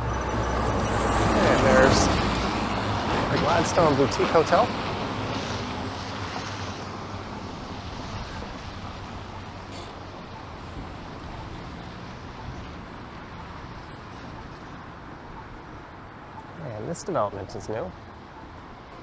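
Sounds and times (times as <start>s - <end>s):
low engine hum: 0.0s - 19.0s
tyres hissing on wet pavement: 0.5s - 13.7s.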